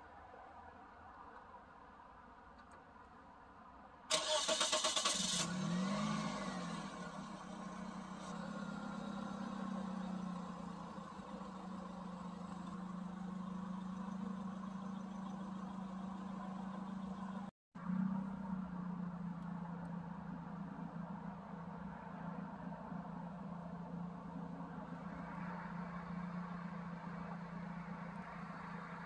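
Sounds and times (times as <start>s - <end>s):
car starter cranking: 4.1s - 6.5s
car engine revving and idling: 4.1s - 29.0s.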